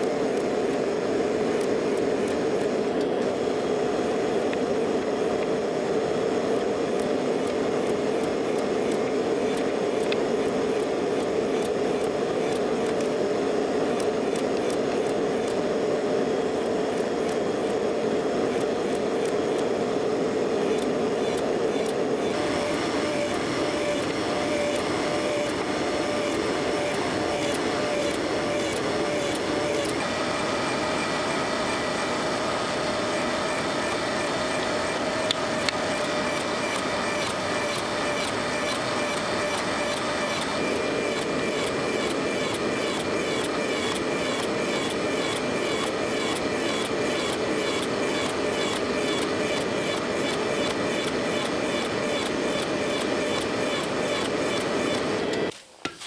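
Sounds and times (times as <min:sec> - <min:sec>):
workshop machine noise: 0:00.0 - 0:56.0.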